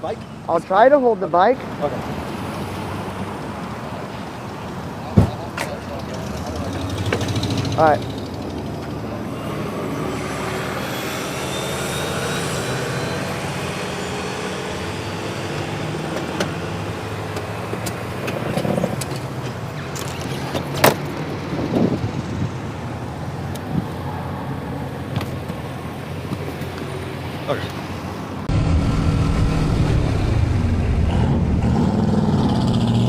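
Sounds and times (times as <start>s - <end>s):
faint whine: 28.5s - 32.7s
vehicle engine running: 28.5s - 33.0s.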